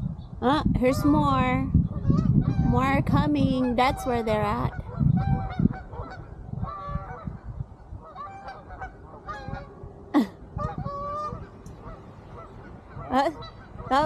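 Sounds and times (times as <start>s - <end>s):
geese honking: 3.4s - 9.8s, 10.6s - 14.0s.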